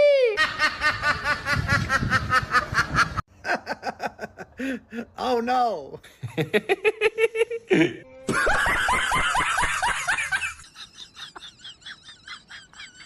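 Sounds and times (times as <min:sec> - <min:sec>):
human laughter: 0:06.2 - 0:13.0.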